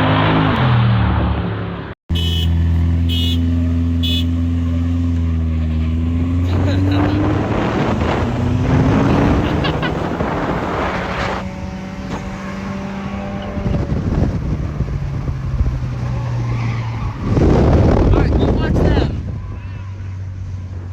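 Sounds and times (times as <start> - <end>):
harsh rushing noise: 6.4 - 15.7.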